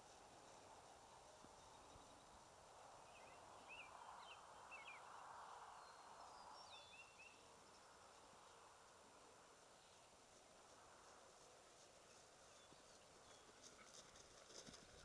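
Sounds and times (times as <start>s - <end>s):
faint bird chirps: 3.0s - 7.5s.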